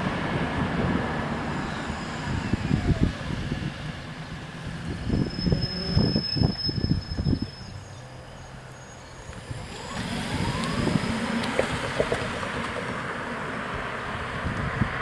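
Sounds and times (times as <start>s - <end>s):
rising whine: 0.0s - 7.9s, 9.0s - 12.6s
road vehicle rush: 0.0s - 15.0s
railcar wheel clatter: 11.5s - 13.1s.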